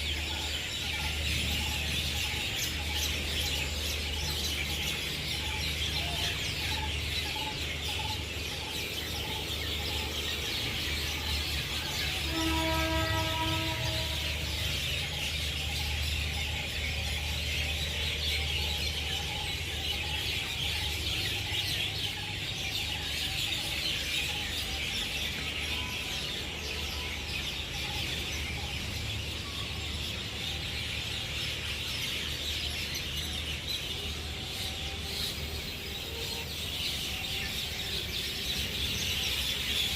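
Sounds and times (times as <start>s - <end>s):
birds calling: 0.0s - 39.9s.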